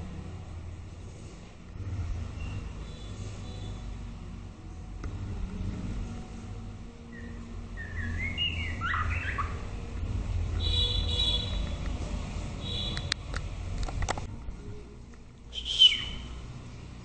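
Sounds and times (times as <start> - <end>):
low steady rumble: 0.0 - 17.0
bird singing whistled notes: 7.1 - 9.6, 15.5 - 16.4.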